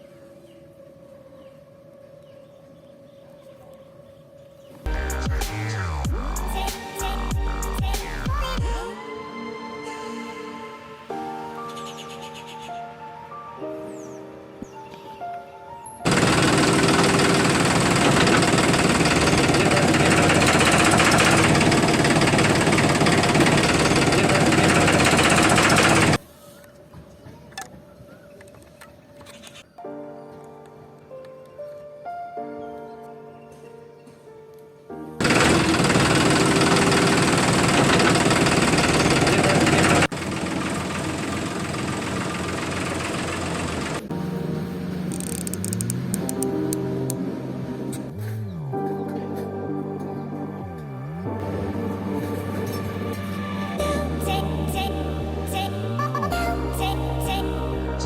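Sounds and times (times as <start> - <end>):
small motor rattling buzz: 16.1 - 26.2, 35.2 - 44.1.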